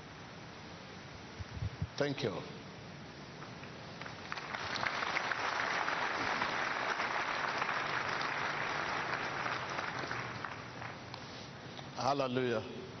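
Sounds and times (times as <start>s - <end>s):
congregation applauding: 4.0s - 11.2s.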